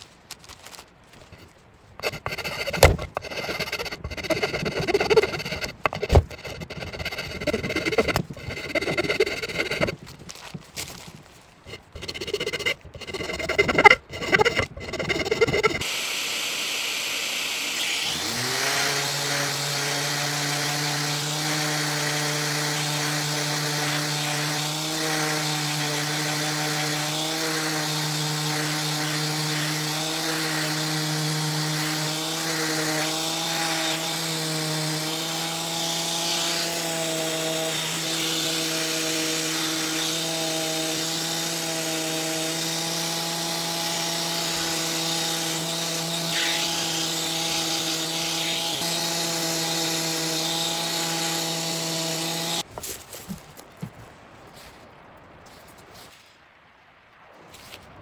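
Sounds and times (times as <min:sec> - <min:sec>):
loud knocks and scrapes: 0:01.2 - 0:15.9
power tool motor on wood: 0:02.0 - 0:10.0, 0:11.7 - 0:52.6.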